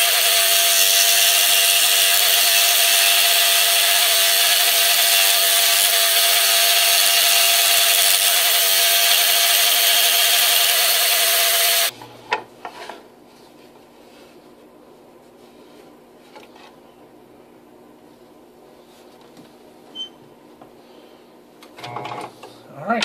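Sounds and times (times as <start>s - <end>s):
scroll saw cutting wood: 0.0s - 11.9s.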